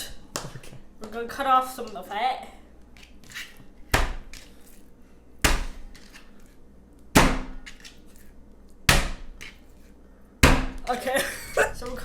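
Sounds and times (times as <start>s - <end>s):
knife chopping on cutting board: 3.9s - 4.4s, 5.4s - 6.1s, 7.2s - 7.7s, 8.9s - 9.5s, 10.4s - 10.8s.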